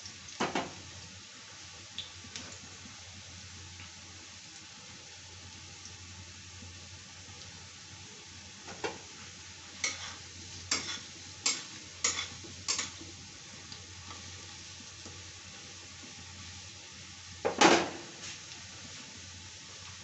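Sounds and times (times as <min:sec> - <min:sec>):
potatoes sizzling in oil: 0:00.0 - 0:20.0
metal spatula scraping pan: 0:09.8 - 0:13.0.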